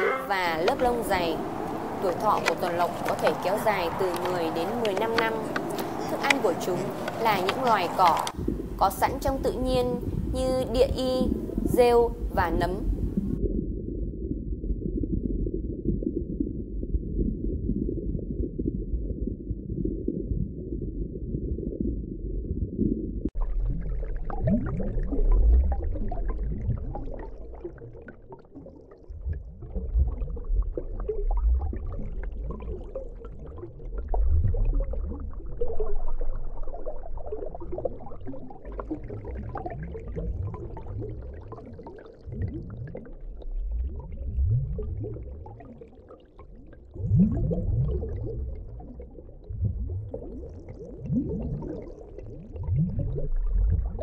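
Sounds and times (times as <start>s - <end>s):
bubbly gurgles: 0.0s - 54.0s
underwater low rumbling: 0.0s - 54.0s.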